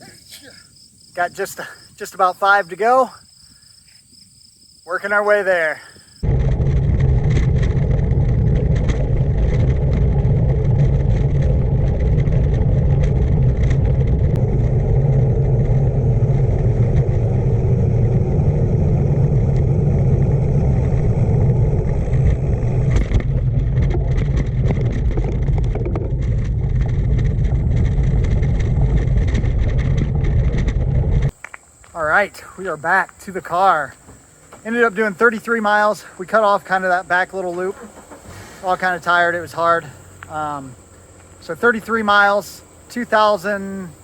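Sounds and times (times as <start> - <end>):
bicycle tyres rolling: 5.8 - 32.0, 33.0 - 44.0
wind buffeting microphone: 6.0 - 31.4.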